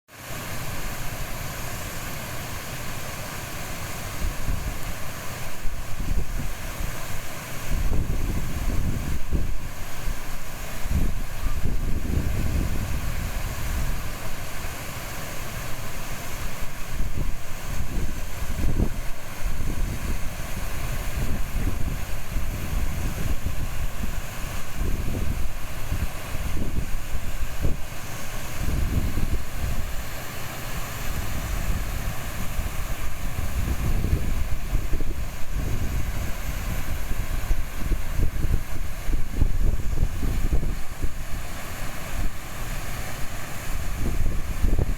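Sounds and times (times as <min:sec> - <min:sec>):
river babbling over stones: 0:00.1 - 0:44.9
wind buffeting microphone: 0:05.5 - 0:06.7, 0:07.6 - 0:14.4, 0:16.4 - 0:30.1, 0:31.0 - 0:44.9.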